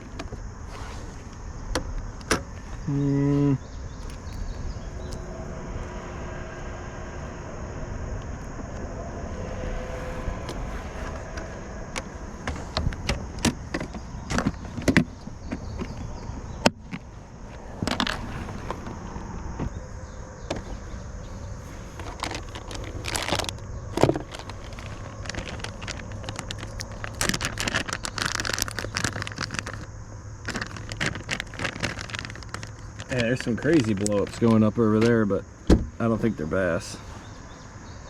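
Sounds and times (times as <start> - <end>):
low rumble: 3.6 - 31.4
fishing tackle clicking and rattling: 4.0 - 5.3.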